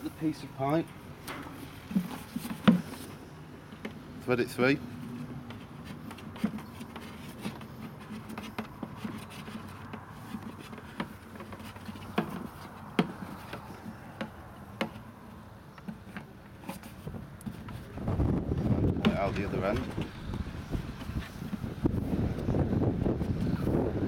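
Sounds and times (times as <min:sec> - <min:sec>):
plastic pipe clicking and rubbing: 0:01.2 - 0:04.0, 0:05.0 - 0:15.1, 0:15.7 - 0:18.0, 0:18.6 - 0:22.5.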